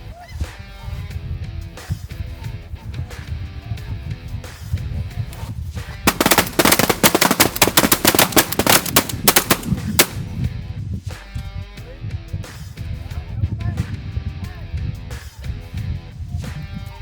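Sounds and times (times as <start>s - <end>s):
shotgun fire: 6.1s - 10.3s.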